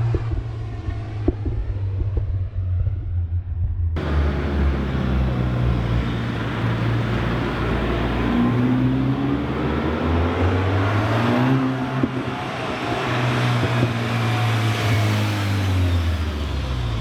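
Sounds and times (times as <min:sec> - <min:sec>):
car exhaust drone: 0:04.0 - 0:17.0.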